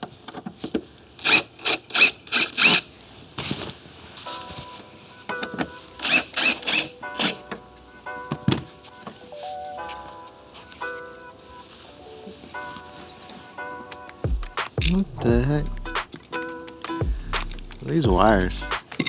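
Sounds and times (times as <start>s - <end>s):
background music: 4.3s - 19.0s.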